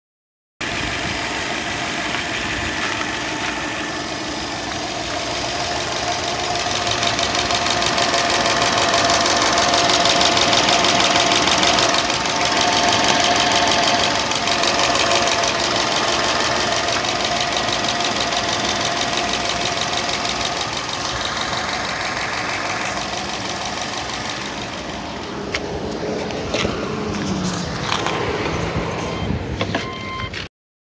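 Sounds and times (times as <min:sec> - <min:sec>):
car engine running: 0:00.6 - 0:29.6.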